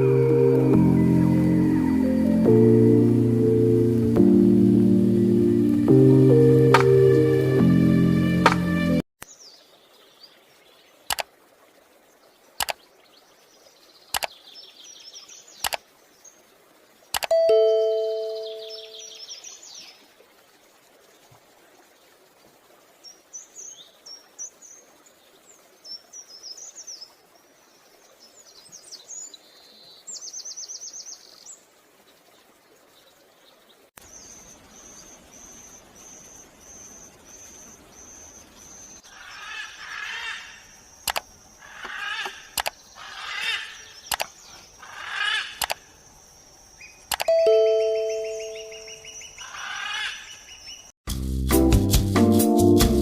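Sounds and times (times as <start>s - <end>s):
high pulsed bird notes: 0.0s - 9.0s, 17.3s - 19.3s, 47.3s - 49.4s
high thin bird chirps: 34.0s - 50.9s
hawk-eagle calls: 34.1s - 45.9s.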